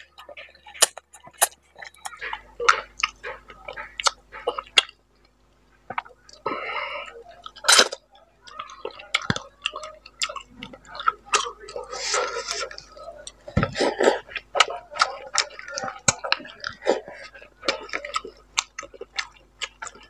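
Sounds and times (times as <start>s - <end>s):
chewing and wet mouth smacks: 7.4s - 11.8s, 12.5s - 20.0s.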